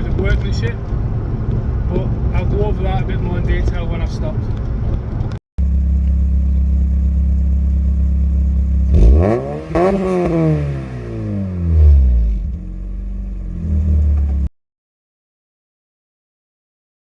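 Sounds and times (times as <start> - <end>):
car engine cruising and revving: 5.0 - 14.5.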